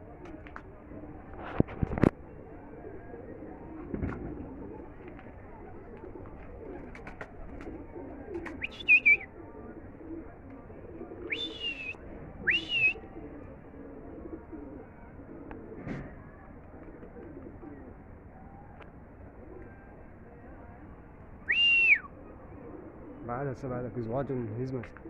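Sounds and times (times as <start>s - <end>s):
pigeons cooing: 0.0s - 20.9s, 21.5s - 25.0s
sharp high whistled calls: 8.6s - 9.3s, 11.3s - 13.0s, 21.5s - 22.1s.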